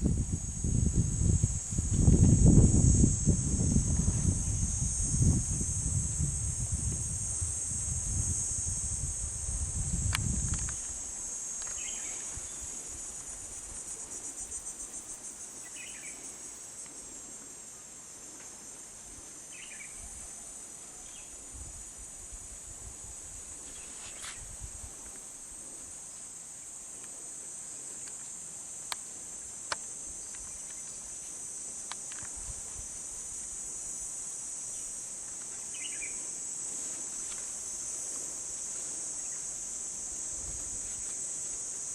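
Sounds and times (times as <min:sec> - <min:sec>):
wind rumble on microphone: 0:00.0 - 0:14.6, 0:21.4 - 0:26.0, 0:32.1 - 0:34.1, 0:40.2 - 0:41.1
insect chorus drone: 0:00.0 - 0:41.9.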